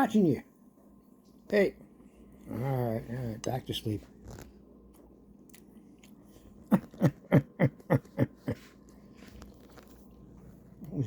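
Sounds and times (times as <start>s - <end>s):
person chewing crunchy food: 8.8s - 10.4s.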